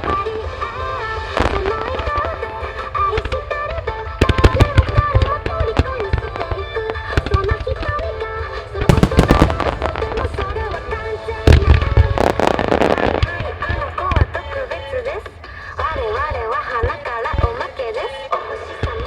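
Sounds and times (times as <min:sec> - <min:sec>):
fireworks cracking and booming: 0:00.0 - 0:08.1, 0:08.8 - 0:15.4
pop song over loudspeakers: 0:00.0 - 0:19.0.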